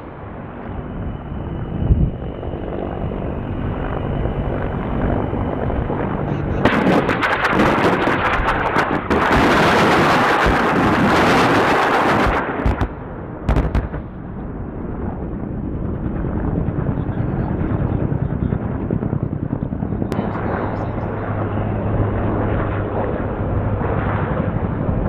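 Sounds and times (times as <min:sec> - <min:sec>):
gunshots and blasts: 0:06.6 - 0:14.2.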